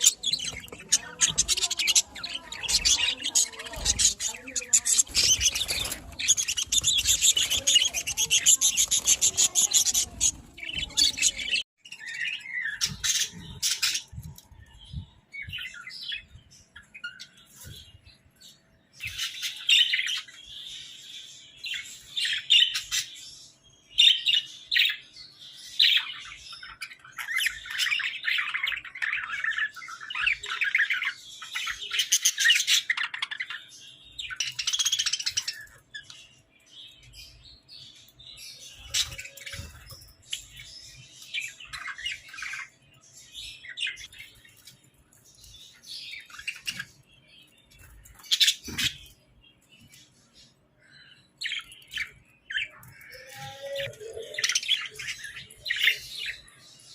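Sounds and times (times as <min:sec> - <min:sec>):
budgerigars chattering: 0:00.0 - 0:11.6.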